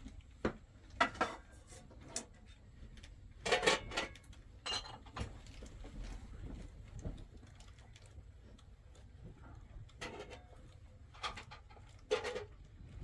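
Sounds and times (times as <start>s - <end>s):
dishes and utensils clinking: 3.5s - 5.2s.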